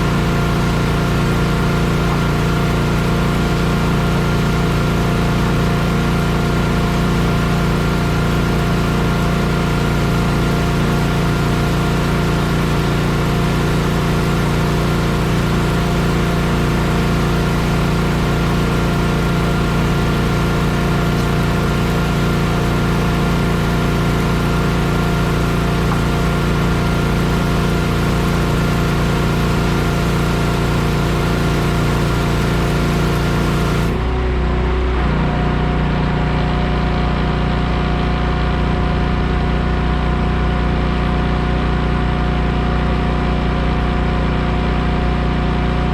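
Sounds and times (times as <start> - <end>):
heavy equipment engine running: 0.0 - 45.9.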